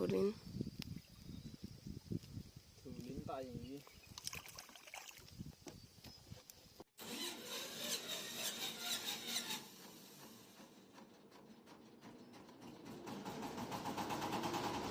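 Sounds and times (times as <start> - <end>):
small boat engine running: 7.0 - 14.9.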